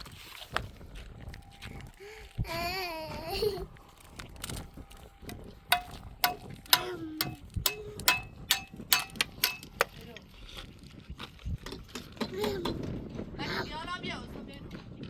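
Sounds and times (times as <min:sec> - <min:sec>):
hard object knocking: 0:05.7 - 0:09.9.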